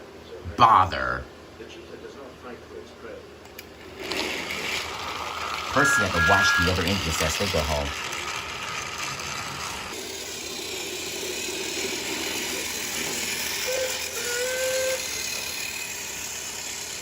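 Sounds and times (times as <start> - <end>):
steam locomotive hissing: 4.0 - 17.0
steam whistle toots: 5.8 - 7.2, 13.6 - 15.6.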